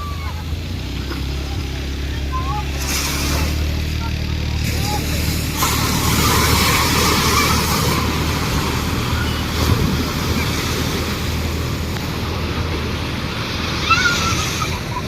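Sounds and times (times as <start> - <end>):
low running hum: 0.0 - 15.0
train rushing noise: 4.6 - 15.0
wind on microphone: 7.8 - 15.0.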